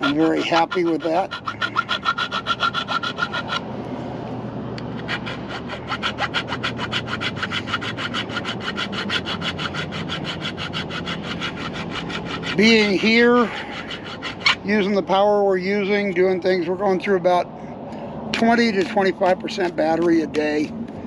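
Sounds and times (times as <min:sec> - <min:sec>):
saw cutting metal: 0:00.0 - 0:03.6, 0:04.9 - 0:15.1.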